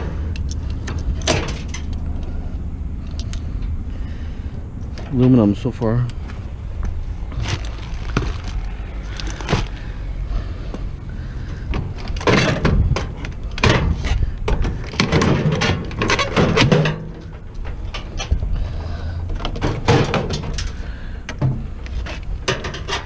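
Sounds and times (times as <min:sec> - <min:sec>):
sheet metal clanks and rattles: 0:00.8 - 0:02.0, 0:11.7 - 0:18.6, 0:19.3 - 0:23.0.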